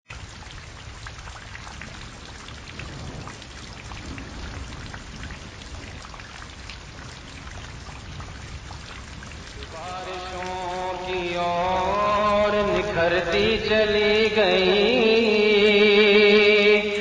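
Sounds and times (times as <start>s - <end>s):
rain falling: 0.1s - 17.0s
raindrops ticking: 0.1s - 17.0s.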